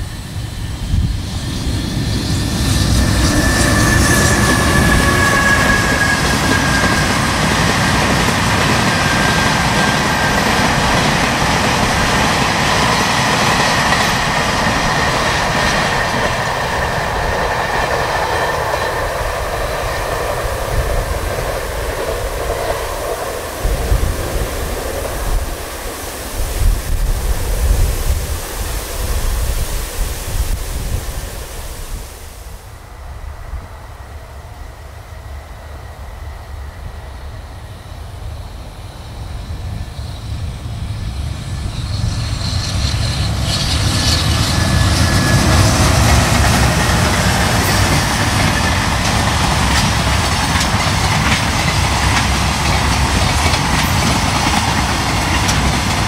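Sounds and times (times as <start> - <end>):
train wheels clattering on rails: 0.0 - 30.6, 39.0 - 56.0
low gusty rumbles: 0.0 - 34.2.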